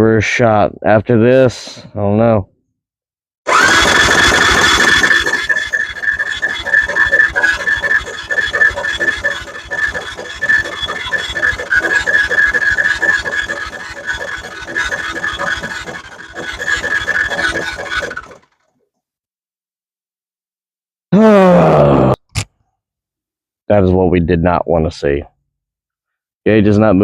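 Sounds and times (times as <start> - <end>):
electric starter cranking engine: 3.5 - 18.6.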